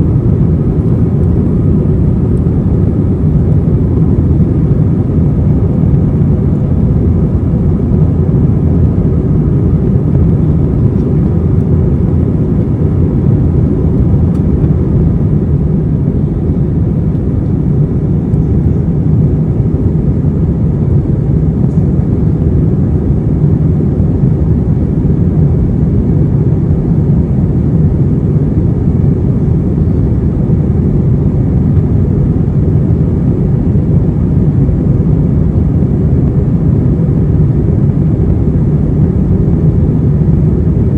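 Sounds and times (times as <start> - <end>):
jet engines rumbling in cabin: 0.0 - 40.9.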